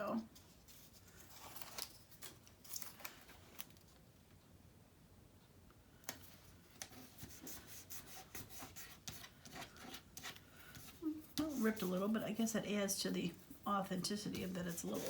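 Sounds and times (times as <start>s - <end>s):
paper crackling: 0.4s - 4.0s, 13.3s - 15.0s.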